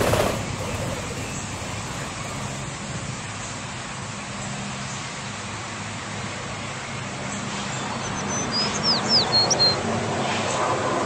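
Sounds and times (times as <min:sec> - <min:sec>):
distant traffic noise: 0:00.0 - 0:04.0.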